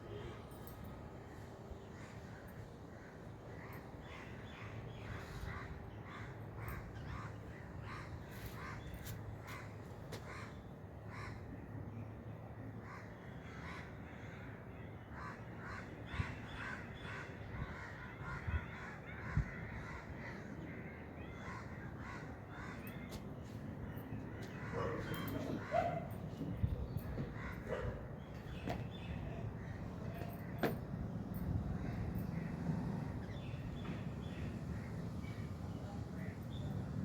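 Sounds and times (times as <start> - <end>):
birds calling: 21.2 - 36.9.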